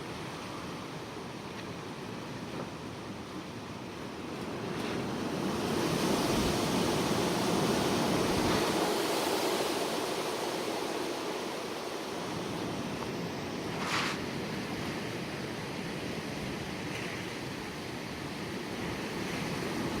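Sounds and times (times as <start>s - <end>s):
strong gust of wind: 4.6s - 15.1s.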